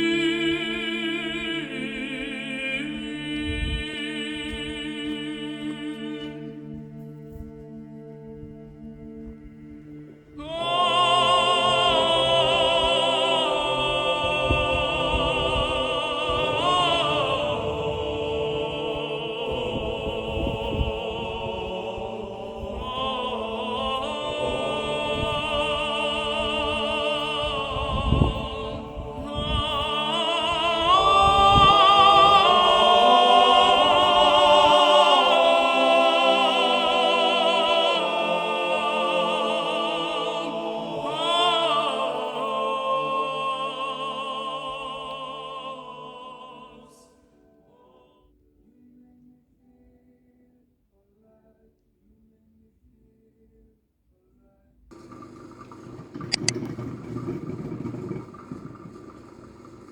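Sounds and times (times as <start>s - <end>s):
person singing operatically: 0.0s - 6.5s, 10.4s - 48.2s.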